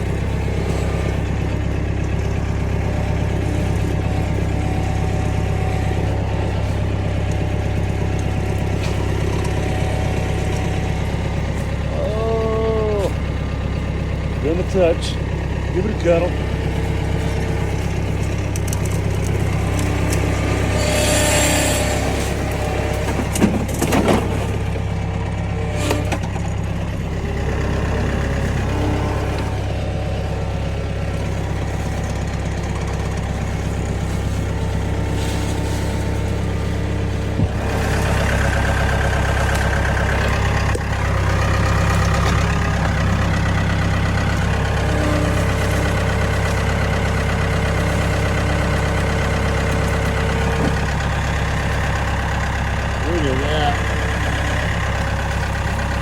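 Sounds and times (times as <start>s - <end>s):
tractor engine running: 0.0s - 56.0s
scraping: 16.4s - 52.2s.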